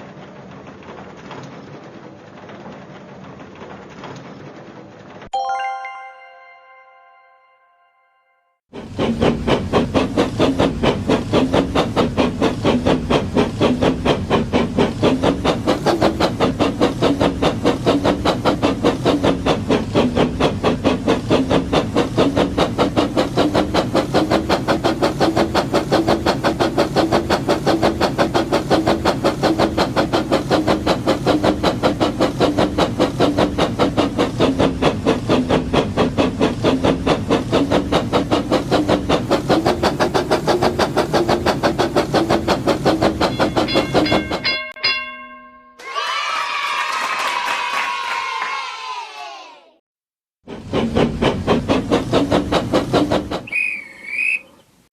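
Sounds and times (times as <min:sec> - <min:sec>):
toy train clatter: 0:08.8 - 0:44.8, 0:50.7 - 0:54.4
toy train motor drone: 0:50.7 - 0:54.4.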